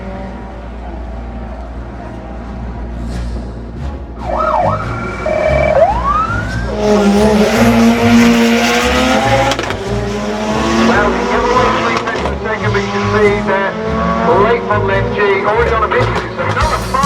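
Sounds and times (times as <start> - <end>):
car engine revving: 0.0 - 17.0
siren-like wail: 4.2 - 8.9
rising sweep: 4.2 - 12.2.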